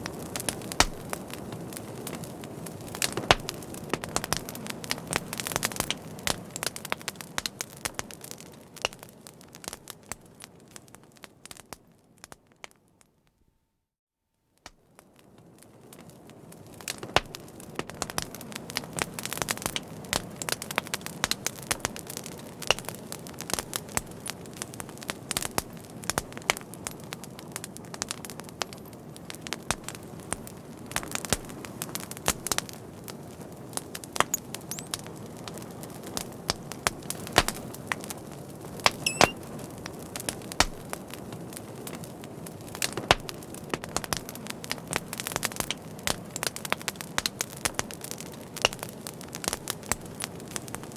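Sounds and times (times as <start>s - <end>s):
fire crackling: 0.0s - 13.1s, 14.7s - 50.9s
wavering high whistle: 39.1s - 39.4s.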